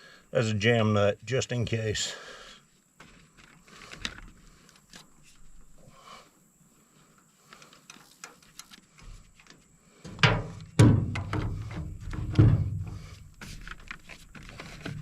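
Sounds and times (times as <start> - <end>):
rumbling handling noise: 7.6 - 15.0
sharp knock: 10.2 - 11.6.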